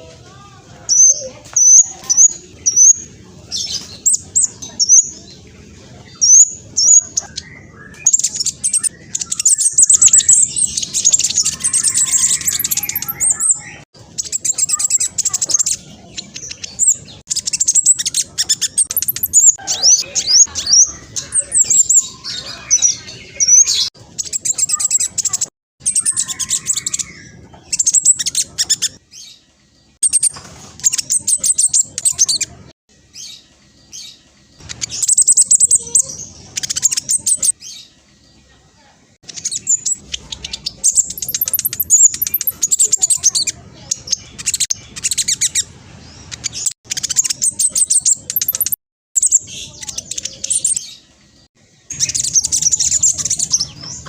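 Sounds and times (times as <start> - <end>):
bird singing rapid chirps: 0.9 - 38.0, 39.2 - 54.0.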